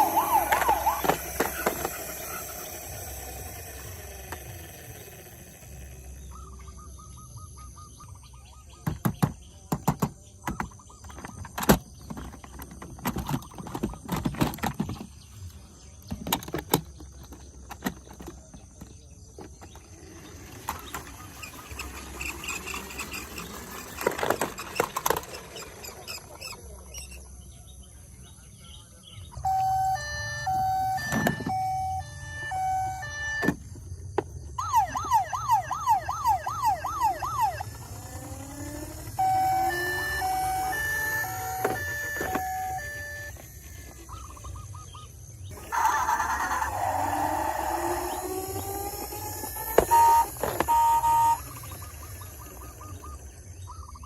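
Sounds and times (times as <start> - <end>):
plastic toys clicking and knocking: 0.0 - 6.2, 8.8 - 27.2, 31.0 - 44.2, 45.5 - 53.0
toy electronic siren: 0.0 - 7.2, 20.0 - 27.3, 29.3 - 33.8, 34.5 - 53.4
electronic beeping tune: 29.4 - 33.7, 34.6 - 43.5, 49.2 - 53.2.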